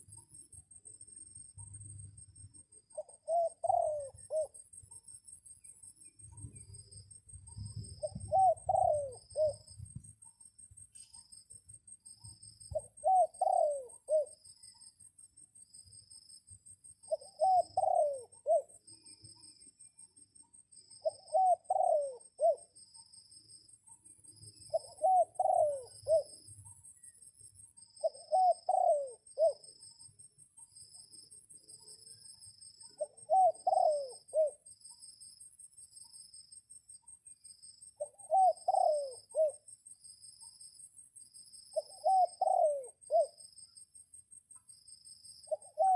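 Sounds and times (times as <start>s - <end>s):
insects trilling: 0.0s - 45.9s
dove cooing: 2.9s - 4.6s, 7.6s - 10.0s, 12.7s - 14.4s, 17.1s - 18.8s, 21.0s - 22.7s, 24.7s - 26.4s, 28.0s - 29.7s, 32.8s - 34.6s, 38.0s - 39.6s, 41.7s - 43.4s, 45.4s - 45.9s.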